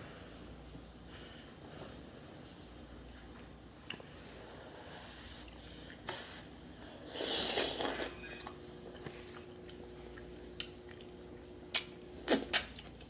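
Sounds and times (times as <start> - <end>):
biting and chewing food: 8.9 - 13.0.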